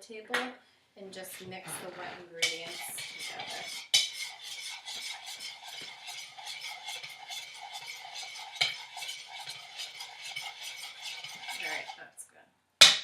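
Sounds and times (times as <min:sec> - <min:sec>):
spoon stirring and clinking in bowl: 0:01.6 - 0:12.0.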